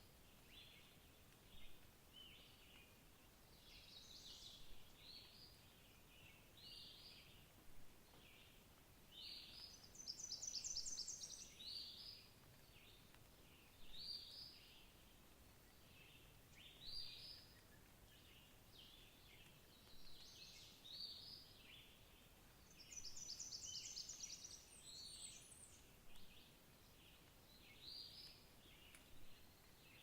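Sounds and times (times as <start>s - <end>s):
faint songbird calls: 9.2s - 15.0s, 15.6s - 22.0s, 22.6s - 30.0s.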